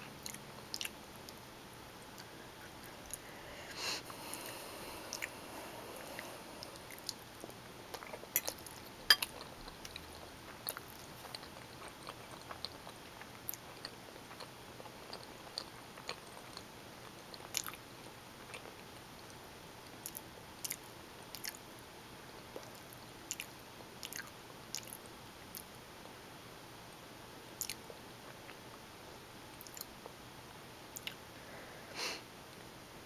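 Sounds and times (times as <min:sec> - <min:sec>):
wet chewing with mouth clicks: 0:00.2 - 0:01.4, 0:02.0 - 0:17.8, 0:19.9 - 0:21.6, 0:22.5 - 0:25.7, 0:27.6 - 0:28.6, 0:29.6 - 0:30.2, 0:30.9 - 0:31.2.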